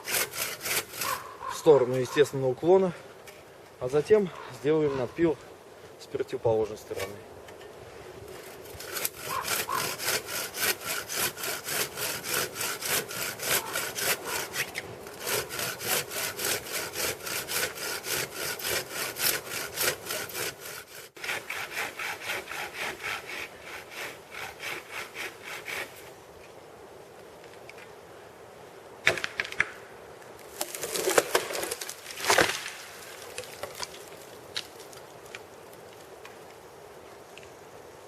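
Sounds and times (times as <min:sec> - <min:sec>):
hand saw cutting wood: 0:00.0 - 0:02.2, 0:08.3 - 0:26.1.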